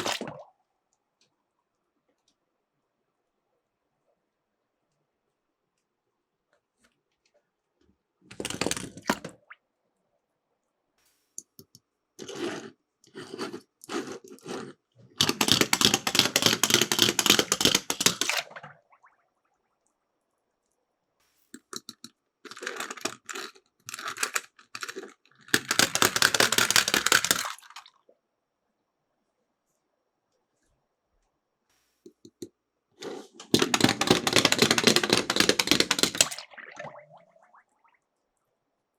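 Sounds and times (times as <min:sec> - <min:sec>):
toy cars rattling down a slope: 0:15.2 - 0:18.5, 0:22.5 - 0:27.6, 0:33.1 - 0:36.4.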